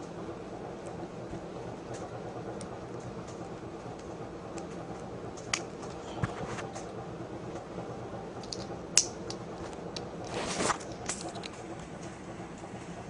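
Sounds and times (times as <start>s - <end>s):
toy parts clicking: 8.4s - 10.1s, 10.8s - 11.6s.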